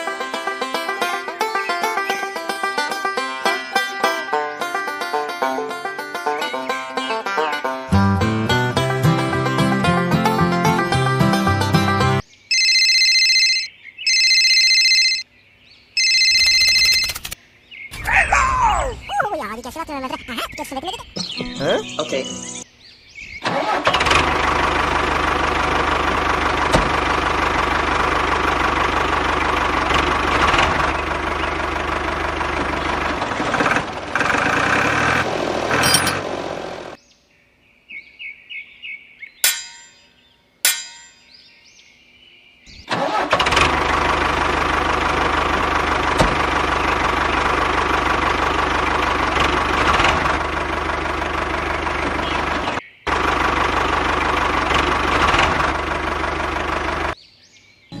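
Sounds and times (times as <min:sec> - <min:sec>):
backhoe engine running: 0:00.0 - 0:13.5, 0:23.4 - 0:37.0, 0:42.9 - 0:57.2.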